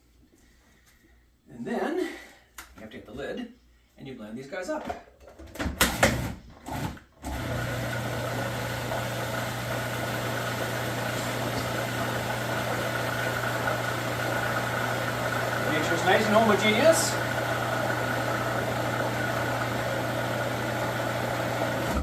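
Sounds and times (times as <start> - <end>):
electric blender motor humming: 7.3 - 22.0.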